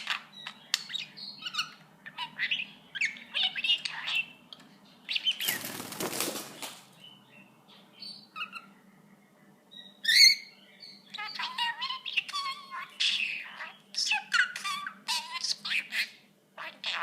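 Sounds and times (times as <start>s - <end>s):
bird chirps: 0.0s - 5.9s, 6.5s - 17.0s
bird wings flapping: 5.4s - 6.9s.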